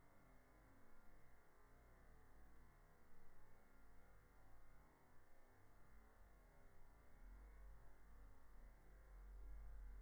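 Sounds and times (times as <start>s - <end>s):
faint low rumble: 6.8s - 10.0s.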